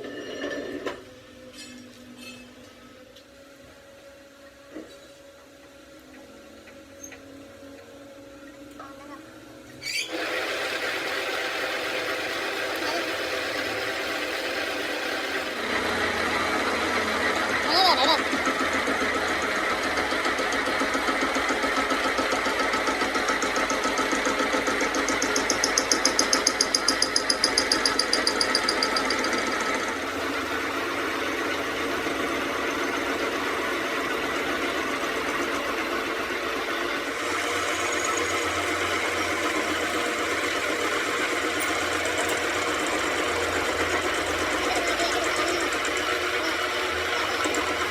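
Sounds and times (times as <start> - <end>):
motor-driven machine running: 9.8 - 47.9.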